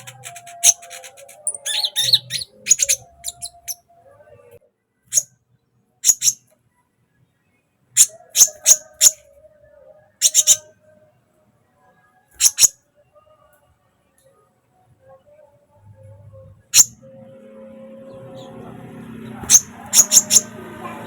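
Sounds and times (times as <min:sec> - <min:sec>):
sunbird chirping: 0:00.0 - 0:03.8, 0:10.2 - 0:10.7, 0:16.7 - 0:20.7.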